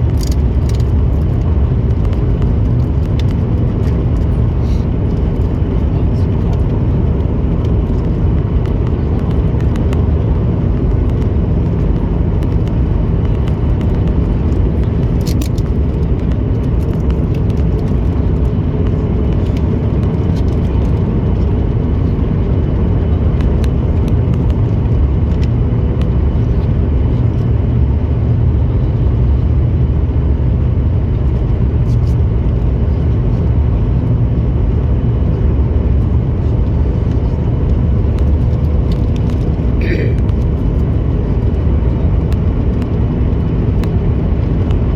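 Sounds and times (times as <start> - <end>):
jet engine and airflow rumble: 0.0 - 44.9.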